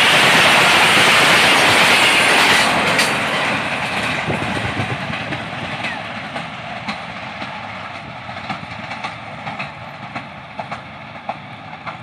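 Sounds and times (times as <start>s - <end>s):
train rushing noise: 0.0s - 12.0s
train wheels clicking and knocking: 0.0s - 12.0s.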